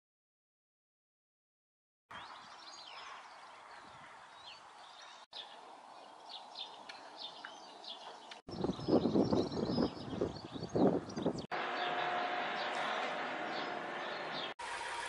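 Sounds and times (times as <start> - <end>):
faint outdoor background noise: 2.1 - 9.0
small birds chirping: 2.1 - 14.6.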